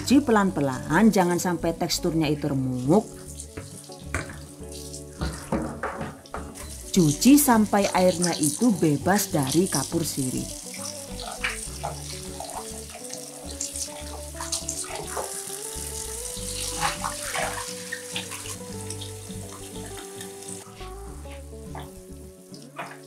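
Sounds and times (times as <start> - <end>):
tap water splashing into bowl: 3.5 - 4.5, 5.2 - 6.7.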